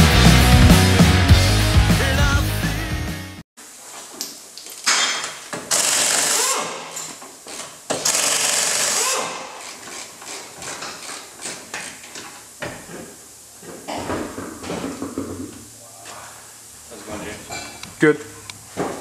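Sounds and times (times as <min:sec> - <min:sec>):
knocks and clatter: 0:10.6 - 0:15.6.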